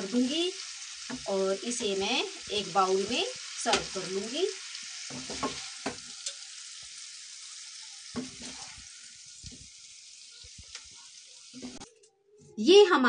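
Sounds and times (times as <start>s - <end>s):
food sizzling in a pan: 0.0s - 11.9s
spatula scraping a pan: 2.3s - 6.9s, 7.9s - 11.9s.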